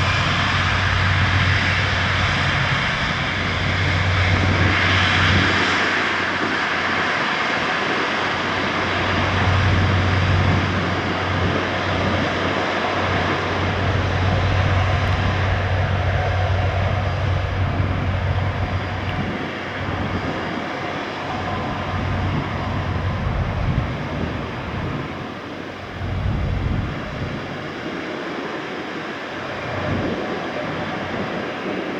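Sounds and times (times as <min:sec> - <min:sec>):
low hum: 0:00.0 - 0:06.2, 0:08.4 - 0:27.6
jet engines roaring: 0:00.0 - 0:31.9.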